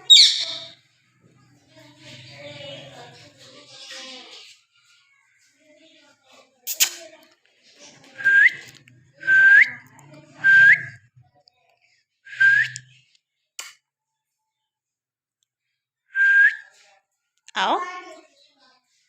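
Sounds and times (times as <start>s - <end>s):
sharp click: 6.7s - 7.0s
short upward-flicking whistles: 12.3s - 12.9s.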